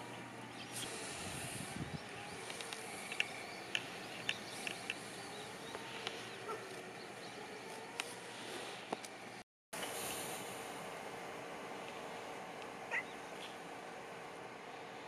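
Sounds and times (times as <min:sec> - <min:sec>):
small birds chirping: 0:00.0 - 0:10.2, 0:12.9 - 0:13.6.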